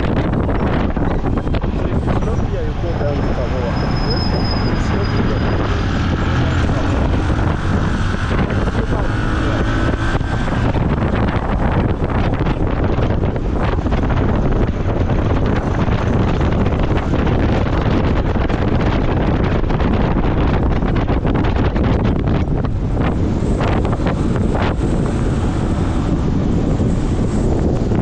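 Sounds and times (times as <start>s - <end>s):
wind rushing over microphone: 0.0s - 28.0s
motorcycle engine running: 5.7s - 28.0s.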